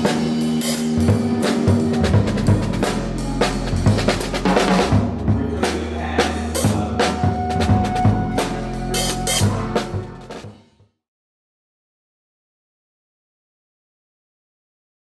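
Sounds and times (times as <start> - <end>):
held higher note: 0.0 - 10.4
sustained low bass notes: 0.0 - 10.4
bass drum and snare hits: 0.0 - 10.5.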